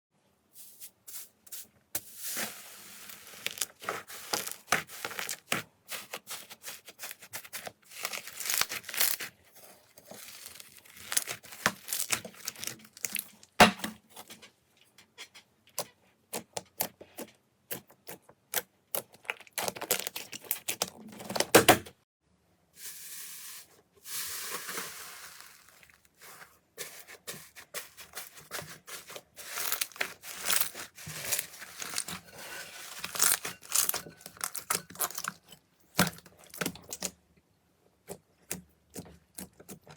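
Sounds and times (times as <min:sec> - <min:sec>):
slime crackling and popping: 0:07.9 - 0:09.3, 0:10.2 - 0:13.5.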